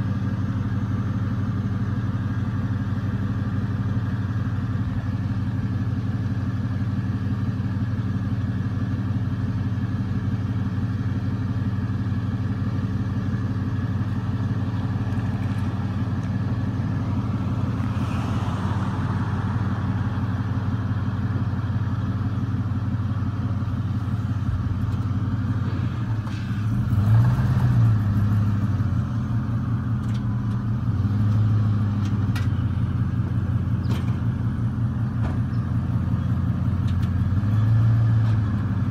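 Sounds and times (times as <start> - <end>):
truck engine idling and revving: 0.0 - 38.9.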